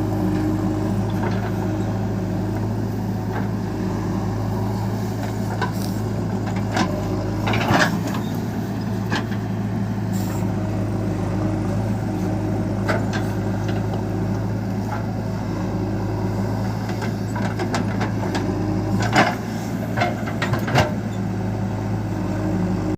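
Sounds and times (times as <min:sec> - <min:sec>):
diesel engine running: 0:00.0 - 0:22.9.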